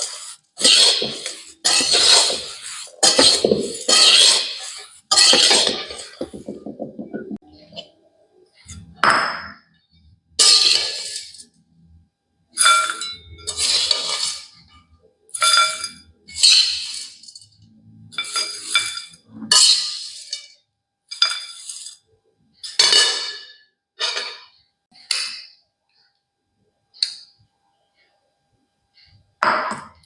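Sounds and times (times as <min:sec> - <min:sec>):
metal utensil scraping cookware: 0:00.0 - 0:07.9, 0:10.4 - 0:11.5, 0:12.6 - 0:22.0, 0:22.6 - 0:25.6.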